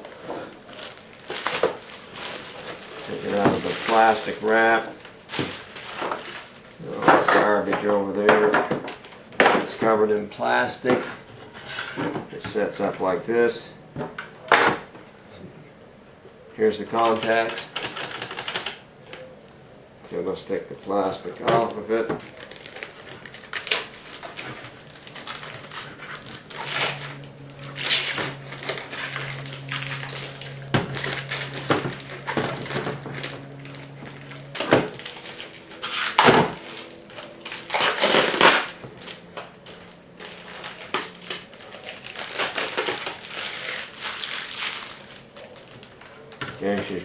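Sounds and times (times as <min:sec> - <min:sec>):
plastic film swishes: 0:00.0 - 0:06.9
plastic film crinkling: 0:00.0 - 0:08.1, 0:19.5 - 0:47.0.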